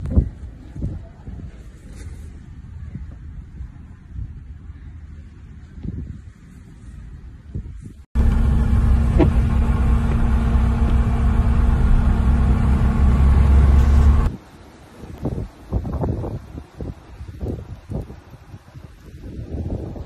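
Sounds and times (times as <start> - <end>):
wind gusting on microphone: 0.0 - 20.0
vehicle engine hum: 8.2 - 14.3.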